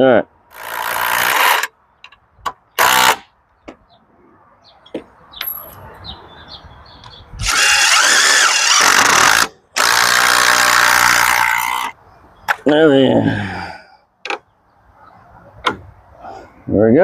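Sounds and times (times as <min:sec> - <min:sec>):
power drill driving screws: 0:00.5 - 0:01.7, 0:02.8 - 0:03.2, 0:07.4 - 0:12.0.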